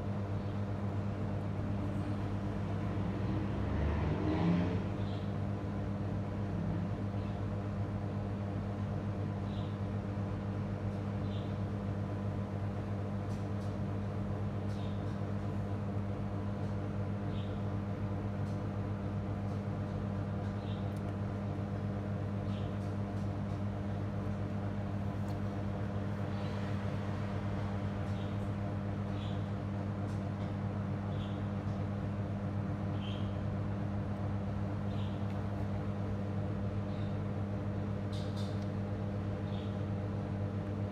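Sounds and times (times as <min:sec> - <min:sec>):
low electrical hum: 0:00.0 - 0:40.9.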